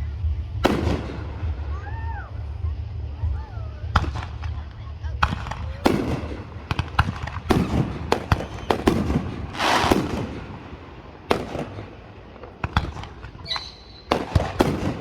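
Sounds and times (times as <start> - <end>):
fireworks bangs and cracks: 0.0 - 15.0
hissing burst: 5.4 - 15.0
high firework whistle: 7.5 - 11.9, 12.7 - 15.0.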